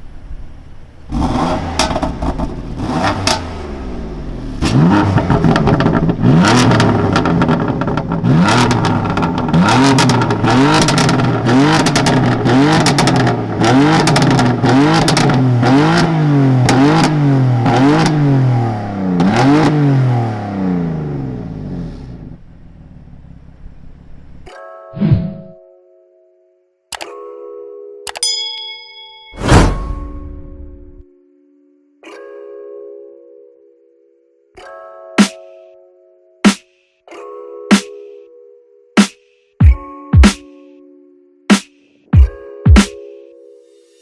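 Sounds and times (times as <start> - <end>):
car engine revving: 0.0 - 24.5
exhaust cracks: 1.1 - 24.4.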